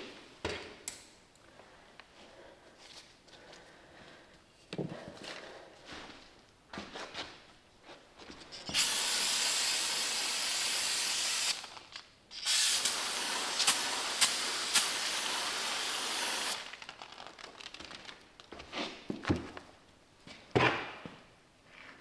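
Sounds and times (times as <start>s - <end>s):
hissing spray: 8.7s - 11.8s, 12.4s - 16.7s.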